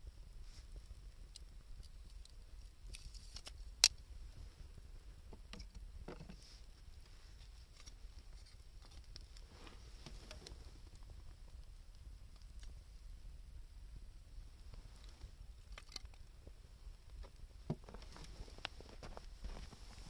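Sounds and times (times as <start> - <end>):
wood fire crackling and popping: 0.2 - 13.6.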